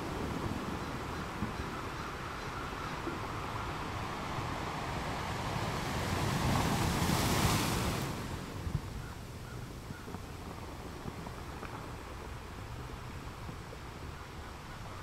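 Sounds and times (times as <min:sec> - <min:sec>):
waves breaking: 0:00.0 - 0:09.0.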